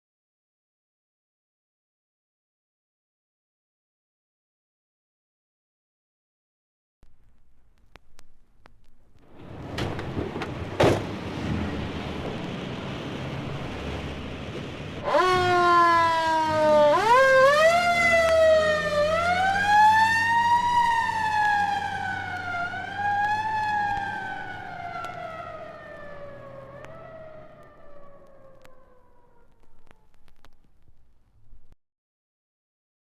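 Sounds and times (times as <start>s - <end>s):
low engine rumble: 7.0s - 19.8s
vehicle siren wailing: 11.3s - 30.3s.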